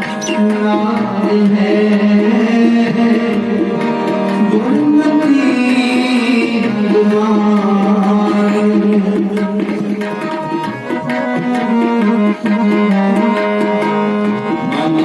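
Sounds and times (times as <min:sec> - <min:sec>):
tabla rhythm: 0:00.0 - 0:15.0
harmonium chords: 0:07.1 - 0:09.7.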